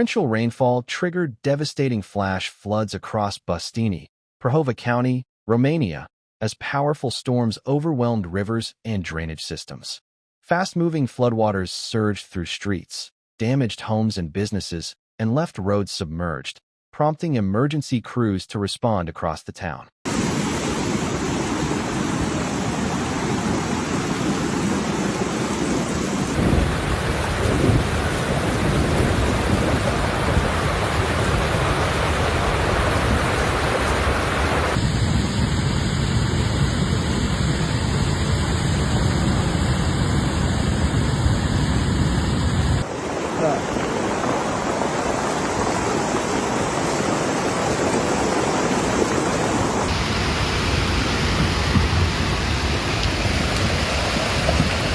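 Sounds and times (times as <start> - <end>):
floodwater rushing: 20.1 - 34.8, 42.8 - 54.9.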